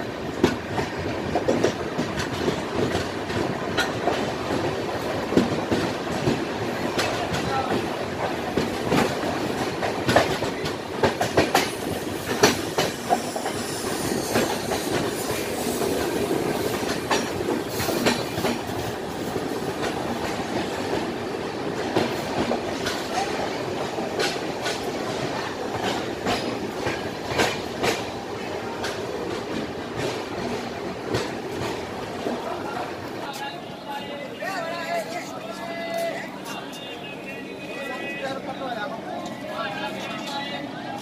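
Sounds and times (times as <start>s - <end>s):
train rumbling: 0.0s - 41.0s
wheels clacking over rail joints: 14.3s - 18.9s.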